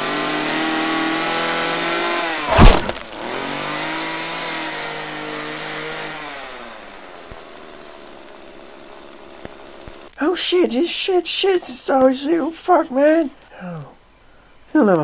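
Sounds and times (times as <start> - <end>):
chainsaw engine running: 0.0 - 10.1
loud sharp crash: 2.4 - 3.3.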